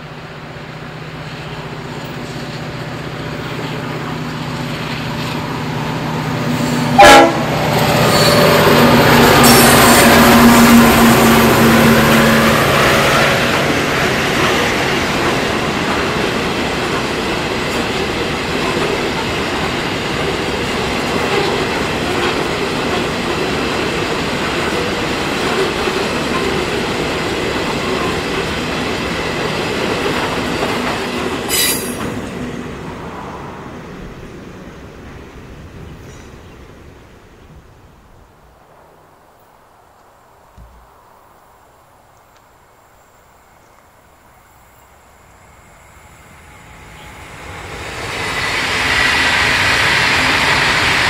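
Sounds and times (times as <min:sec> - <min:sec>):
freight train wheels rumbling: 0:00.0 - 0:38.4, 0:43.5 - 0:51.0
high wheel squeal: 0:07.9 - 0:10.9, 0:31.5 - 0:32.1.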